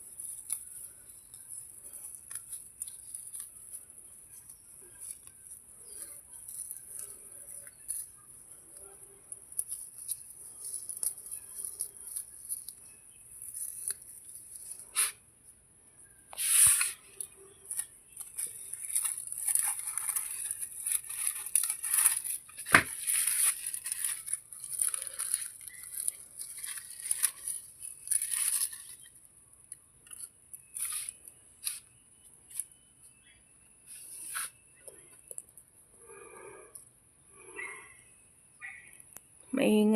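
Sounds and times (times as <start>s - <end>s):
grass being pulled and torn: 0.0s - 15.2s, 16.3s - 29.2s, 30.0s - 32.8s.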